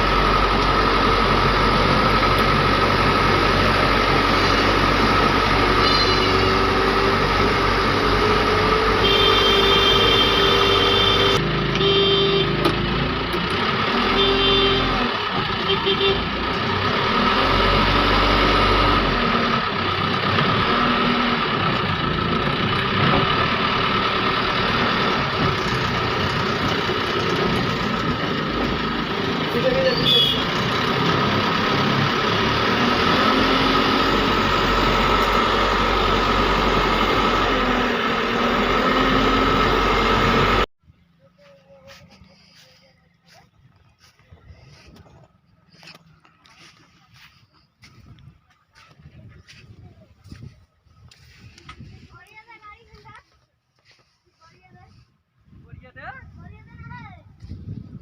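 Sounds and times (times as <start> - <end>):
heavy diesel engine running: 0.0 - 40.7, 41.4 - 50.5
vehicle horn blasts: 5.8 - 6.6, 8.9 - 12.7, 13.9 - 16.4, 29.8 - 30.6.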